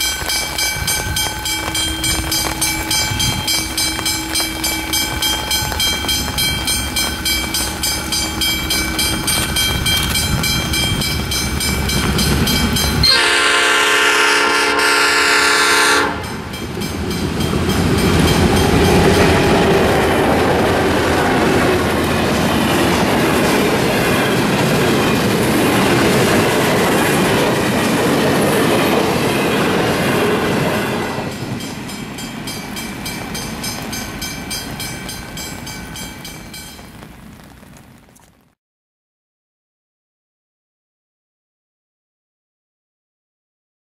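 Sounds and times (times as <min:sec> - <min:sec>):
locomotive engine throbbing: 0:00.0 - 0:36.8
train wheels rumbling on rail: 0:00.0 - 0:37.9
locomotive horn: 0:01.0 - 0:06.4, 0:12.8 - 0:16.5.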